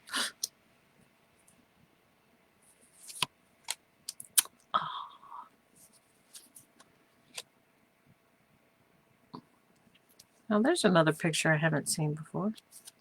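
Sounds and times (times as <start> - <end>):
playing cards clicking and sliding: 2.9 - 4.2.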